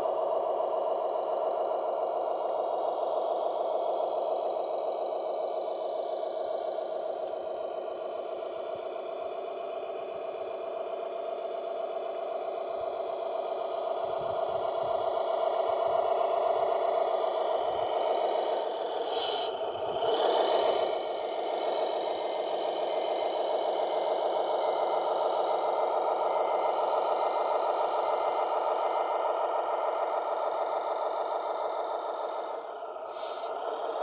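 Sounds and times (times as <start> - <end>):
model vehicle motor whine: 13.3 - 26.4.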